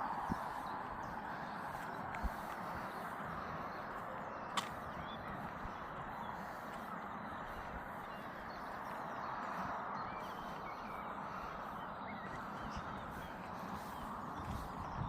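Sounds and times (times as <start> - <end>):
faint bird calls: 0.0 - 15.0
outdoor background noise: 0.0 - 15.0.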